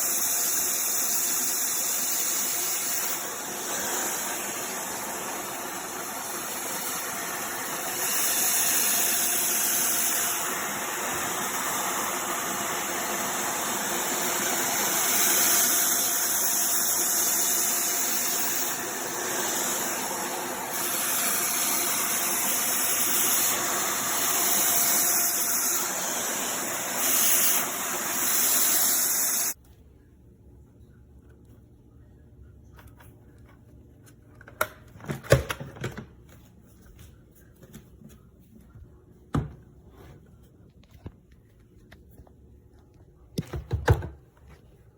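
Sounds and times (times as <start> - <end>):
vacuum cleaner running: 0.0 - 29.6
faint low hum: 29.6 - 34.6.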